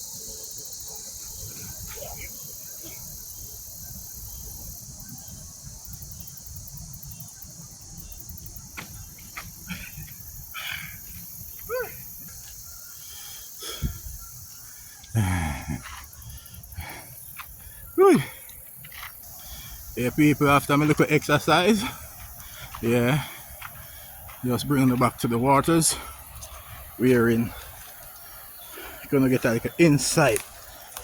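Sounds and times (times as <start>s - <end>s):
crickets chirping: 0.0s - 31.0s
falling voice-like sounds: 18.0s - 18.4s.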